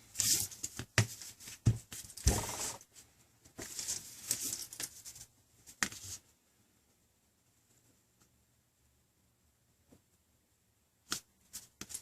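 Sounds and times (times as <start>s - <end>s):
rustling of handling: 0.0s - 6.4s.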